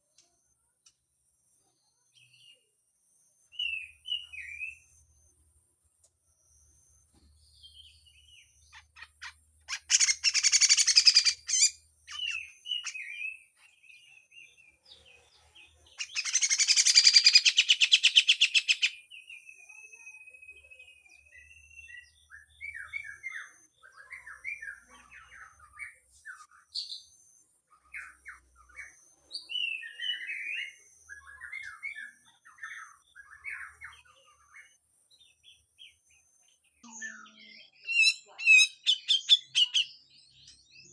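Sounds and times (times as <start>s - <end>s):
bird chirps and whistled notes: 6.4s - 14.5s, 16.0s - 40.9s
harsh rattling bird song: 7.4s - 19.4s, 21.3s - 40.9s.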